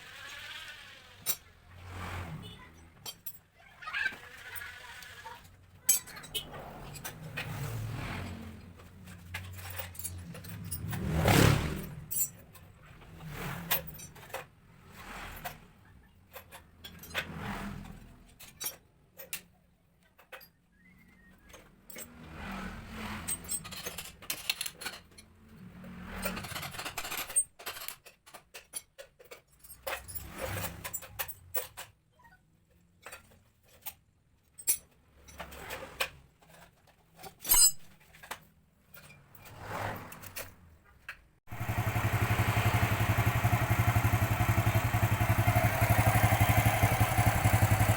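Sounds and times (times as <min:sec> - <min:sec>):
metallic clinks and rattles: 0:05.7 - 0:07.5, 0:08.8 - 0:12.9, 0:23.2 - 0:32.0, 0:32.7 - 0:35.7, 0:36.4 - 0:39.5.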